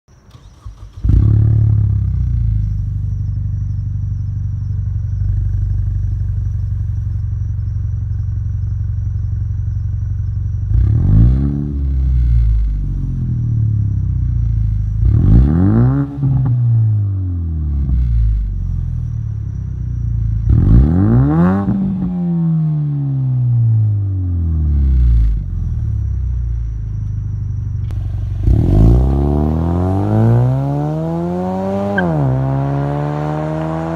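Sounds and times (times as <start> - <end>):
car engine starting and idling: 0.2 - 33.9
car engine revving: 10.6 - 18.9, 20.4 - 26.0, 27.5 - 33.9.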